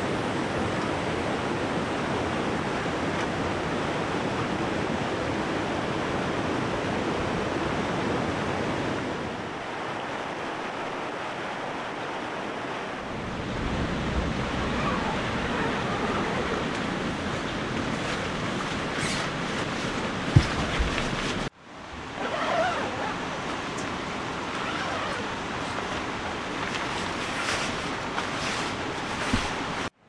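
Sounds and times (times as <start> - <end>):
wind rumble on microphone: 0.0 - 29.9
river rushing: 0.0 - 30.0.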